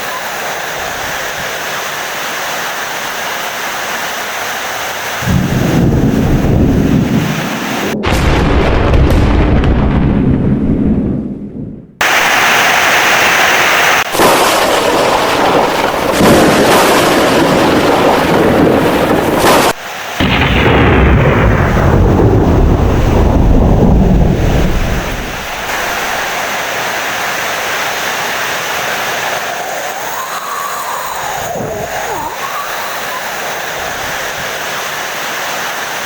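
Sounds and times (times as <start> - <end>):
heavy rain: 0.0 - 8.6, 12.0 - 36.0
thunder rumbling: 5.2 - 12.9, 14.0 - 27.7, 29.0 - 34.5.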